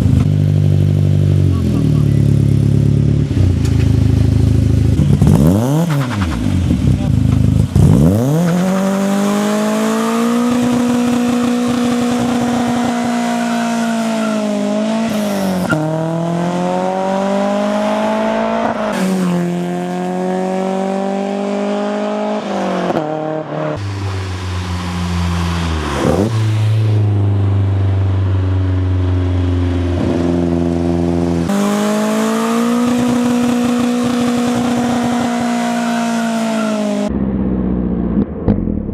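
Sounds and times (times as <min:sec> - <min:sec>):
car engine revving hard: 0:01.0 - 0:27.3, 0:30.0 - 0:37.1
tyre squeal: 0:12.8 - 0:14.5.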